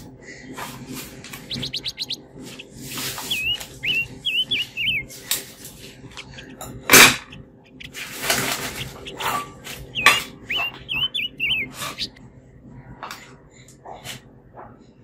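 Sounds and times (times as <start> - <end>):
small bird chirping: 1.2 - 12.2
bird whistled notes: 1.4 - 5.3, 6.2 - 12.2.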